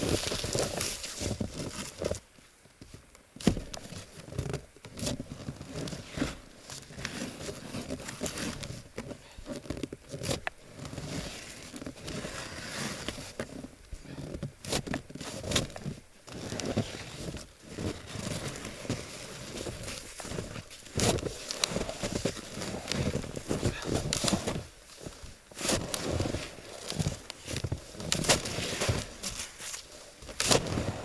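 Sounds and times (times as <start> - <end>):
shovel scraping packed snow: 10.7 - 14.3, 15.3 - 31.0.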